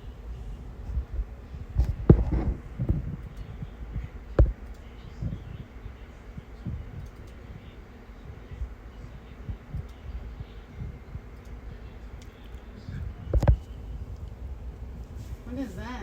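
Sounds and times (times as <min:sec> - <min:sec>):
soft low thumps: 0:00.3 - 0:11.4
clicks: 0:06.6 - 0:07.4, 0:09.7 - 0:14.4.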